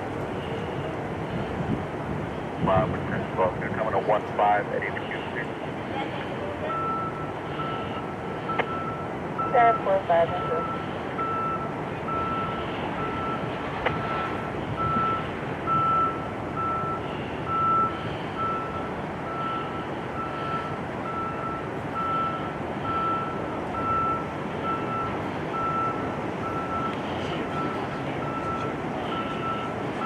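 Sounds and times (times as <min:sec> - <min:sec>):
vehicle backup alarm beeping: 0:00.1 - 0:30.0.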